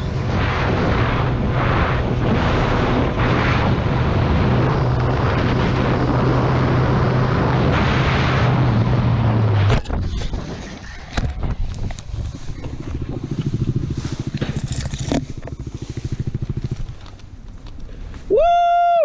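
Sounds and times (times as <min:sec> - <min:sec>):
motorcycle engine running: 0:00.0 - 0:09.8, 0:11.2 - 0:18.3
wind rush: 0:00.0 - 0:17.1.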